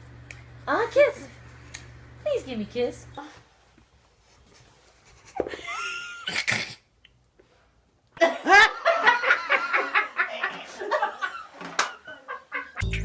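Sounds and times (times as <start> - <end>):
person laughing: 5.2 - 6.7.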